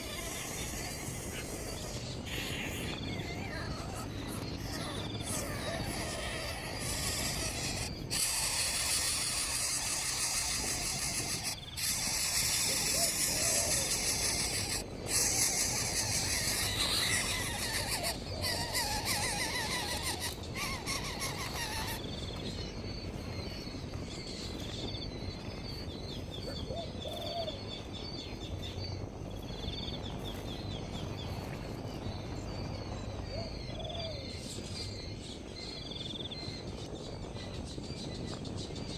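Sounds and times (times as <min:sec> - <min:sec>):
high insect drone: 0:00.0 - 0:26.3
insect chirping: 0:00.0 - 0:38.5.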